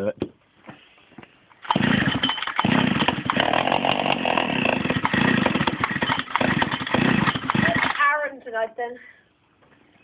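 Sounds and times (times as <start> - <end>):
two-stroke engine revving: 1.6 - 8.0.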